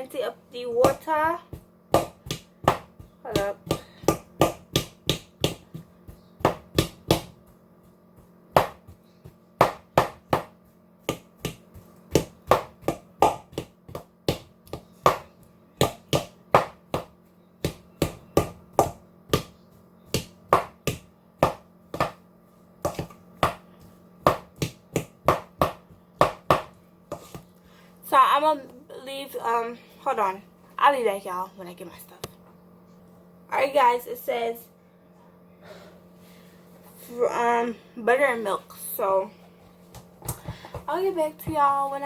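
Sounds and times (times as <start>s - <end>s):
faint steady hum: 0.0s - 42.0s.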